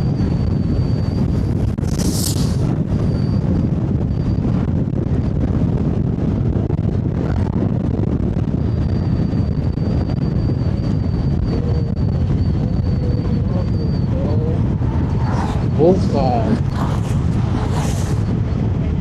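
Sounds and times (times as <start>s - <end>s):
wind buffeting microphone: 0.0s - 19.0s
faint high whine: 7.3s - 19.0s.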